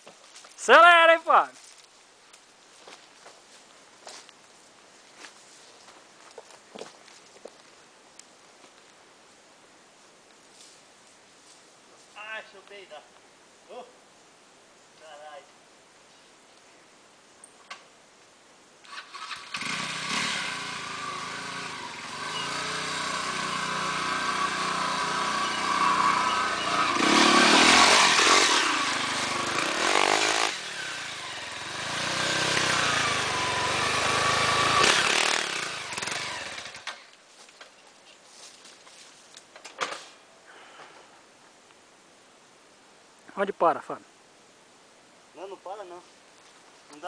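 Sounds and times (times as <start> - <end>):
motorcycle engine revving: 18.9 - 37.1.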